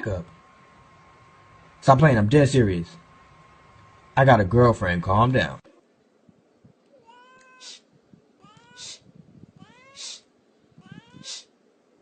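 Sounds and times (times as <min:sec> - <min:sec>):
cat meowing: 0:06.9 - 0:07.8, 0:08.4 - 0:10.2, 0:10.8 - 0:11.5.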